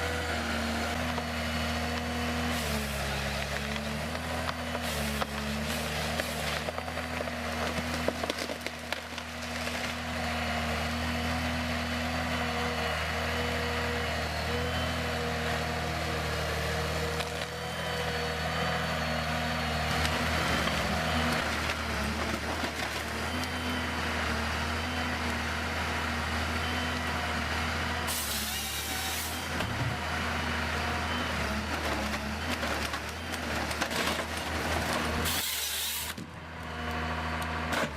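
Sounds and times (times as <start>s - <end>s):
heavy machine engine running: 0.0s - 37.9s
wood cracking and knocking: 6.2s - 10.0s.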